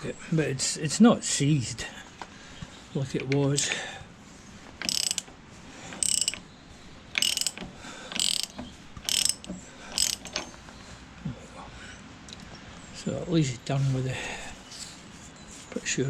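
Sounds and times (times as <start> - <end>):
socket ratchet clicking: 4.8 - 5.3, 6.0 - 6.4, 7.1 - 10.5.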